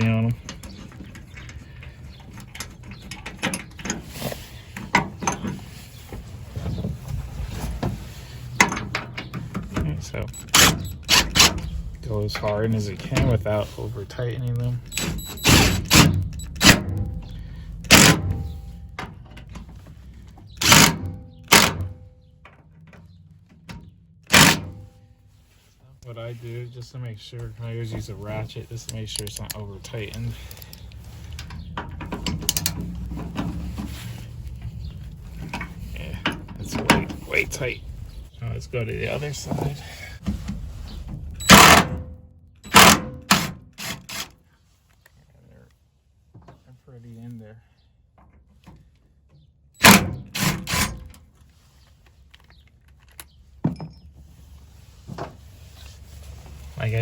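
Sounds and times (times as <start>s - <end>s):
power driver driving screws: 10.3s - 11.8s, 14.9s - 17.0s, 17.9s - 18.4s, 20.6s - 21.9s, 24.3s - 24.8s, 41.4s - 41.9s, 42.7s - 44.3s, 49.8s - 51.1s.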